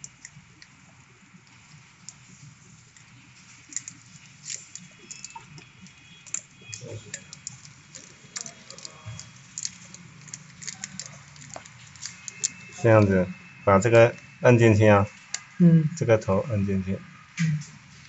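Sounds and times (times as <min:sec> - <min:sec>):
small hard parts clicking: 0:02.9 - 0:12.8.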